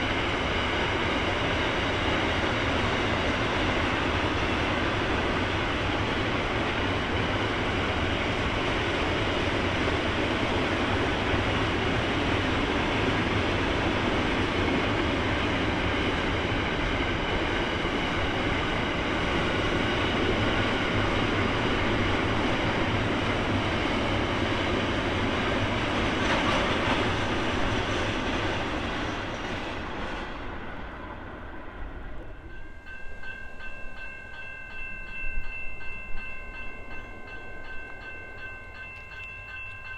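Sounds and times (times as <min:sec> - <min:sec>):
train rumbling on rails: 0:00.0 - 0:39.9
steady high ringing tones: 0:32.3 - 0:39.9.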